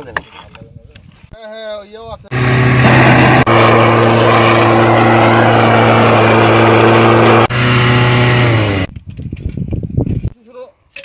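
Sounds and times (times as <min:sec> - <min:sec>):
grinding machine hissing: 0:02.3 - 0:08.9.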